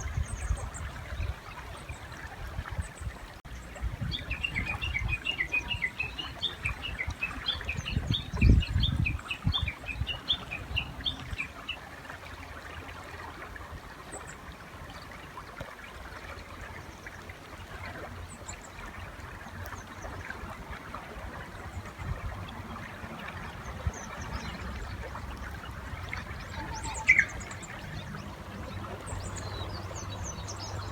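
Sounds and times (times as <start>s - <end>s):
bird chirping rapidly: 26.6s - 27.8s.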